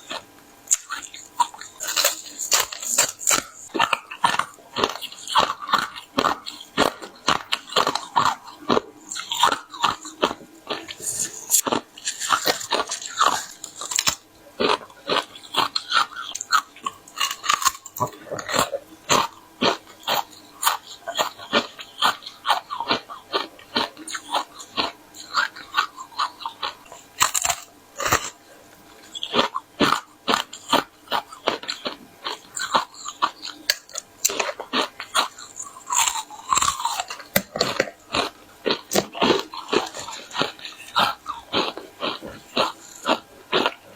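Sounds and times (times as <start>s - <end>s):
ice crunching being chewed: 0.0s - 43.9s.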